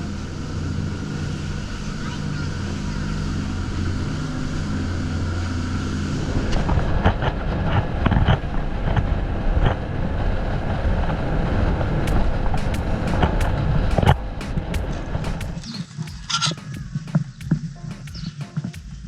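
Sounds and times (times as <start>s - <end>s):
boat engine hum: 0.0s - 7.6s.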